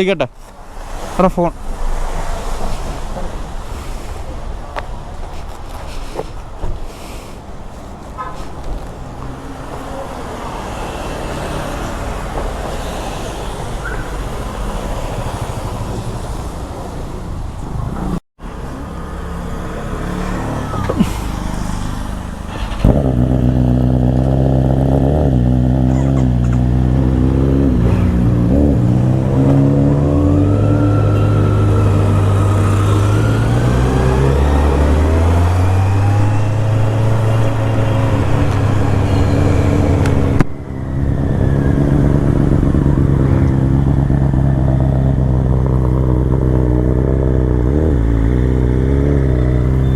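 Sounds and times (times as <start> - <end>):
road and wind noise: 0.0 - 49.9
engine revving through gears: 17.9 - 49.9.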